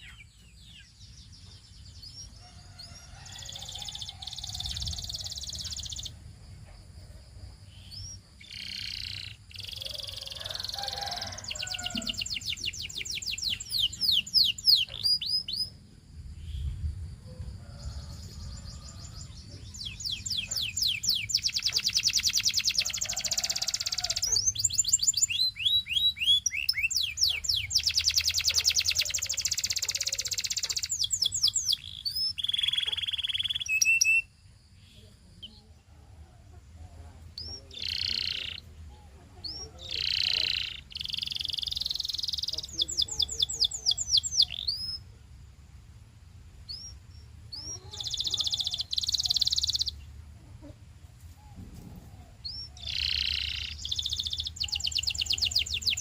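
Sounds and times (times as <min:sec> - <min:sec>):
canary singing in fast trills: 0:00.0 - 0:06.4, 0:07.6 - 0:16.7, 0:17.7 - 0:35.8, 0:36.4 - 0:45.1, 0:46.5 - 0:51.4, 0:52.0 - 0:56.0.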